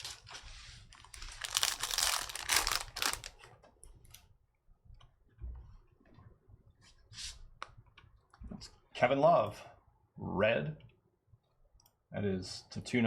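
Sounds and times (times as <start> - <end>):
cards and wrappers rustling: 0.0 - 3.5.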